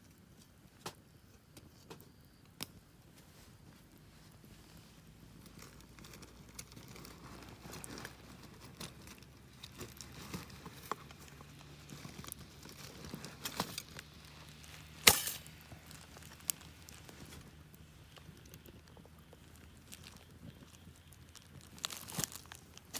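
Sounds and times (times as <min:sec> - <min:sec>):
campfire crackling and popping: 0:05.2 - 0:22.9.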